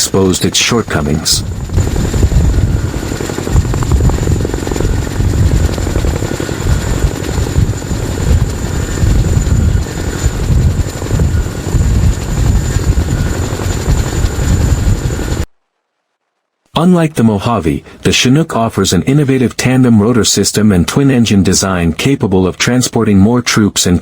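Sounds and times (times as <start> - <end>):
helicopter rotors pulsing: 0.0 - 15.5, 16.8 - 24.0
high-pitched whine: 0.0 - 15.5.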